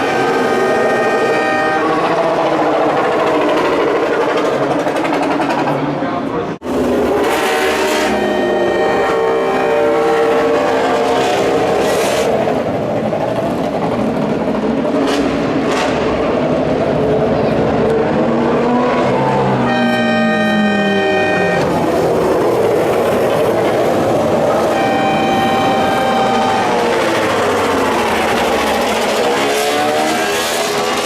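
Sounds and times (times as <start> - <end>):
racing motorcycle engines revving: 6.7 - 31.0.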